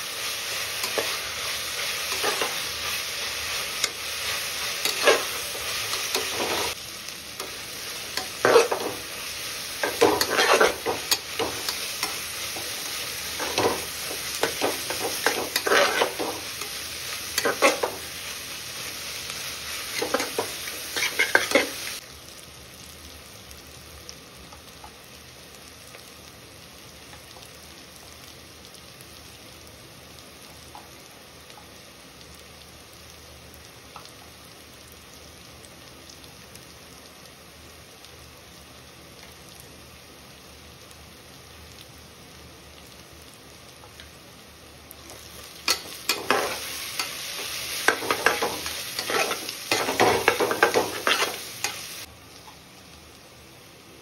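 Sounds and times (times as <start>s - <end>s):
spices sizzling in oil: 0.0s - 54.0s
spatula scraping a pot: 10.0s - 10.9s, 15.1s - 16.3s.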